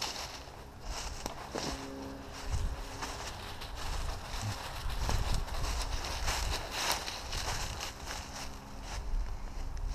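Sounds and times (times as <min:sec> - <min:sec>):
crunching through dry leaves: 0:00.0 - 0:09.9
wind on microphone: 0:02.3 - 0:07.8.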